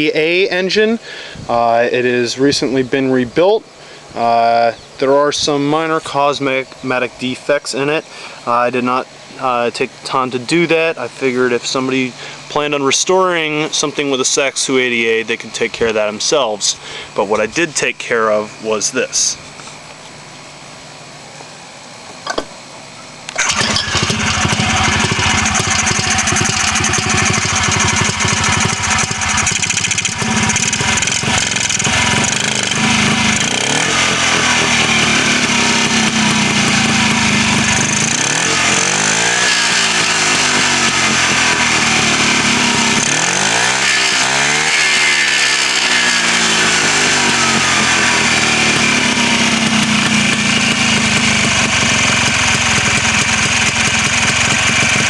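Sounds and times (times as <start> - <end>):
two-stroke engine revving: 23.4 - 55.0.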